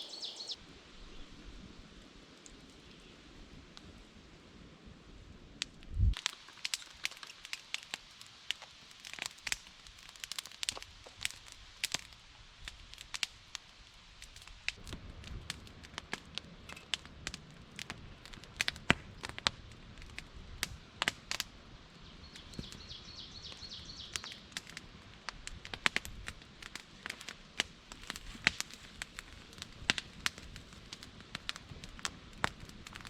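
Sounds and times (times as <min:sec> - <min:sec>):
bird singing: 0:00.0 - 0:00.6, 0:22.0 - 0:24.4
campfire crackling and popping: 0:02.2 - 0:04.2, 0:05.2 - 0:33.0.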